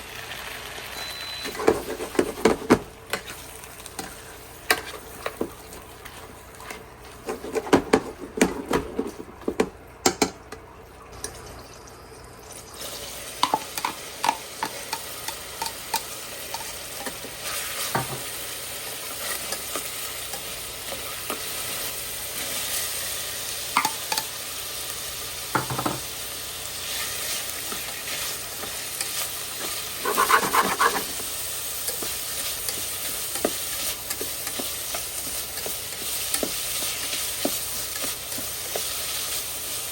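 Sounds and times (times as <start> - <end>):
food sizzling in a pan: 0.0 - 8.0, 11.2 - 39.9
utensil knocking and scraping pan: 1.5 - 3.4, 6.6 - 10.3, 28.6 - 31.3.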